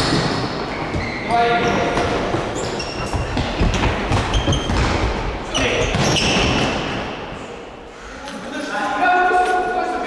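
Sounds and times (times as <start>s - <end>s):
shoe squeaks: 0.0s - 6.9s
ball kicks and bounces echoing: 0.0s - 7.0s.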